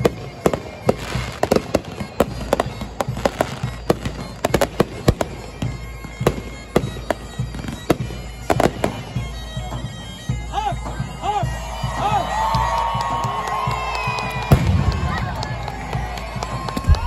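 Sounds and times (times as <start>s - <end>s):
fireworks bangs and crackles: 0.0s - 9.1s, 14.2s - 17.0s.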